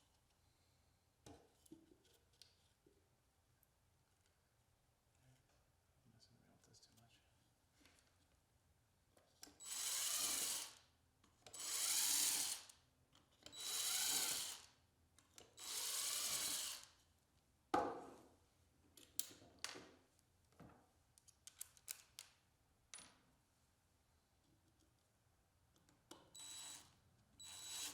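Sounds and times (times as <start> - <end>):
power drill bursts: 9.6 - 10.7, 11.6 - 12.6, 13.6 - 14.6, 15.6 - 16.8, 26.4 - 27.9.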